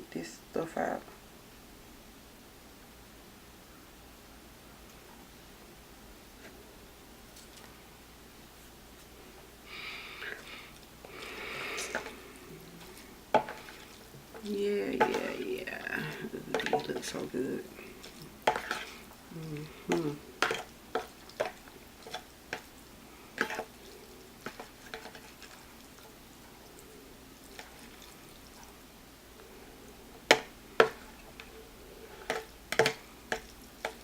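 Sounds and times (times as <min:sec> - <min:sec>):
noodle slurps: 0:17.8 - 0:22.3.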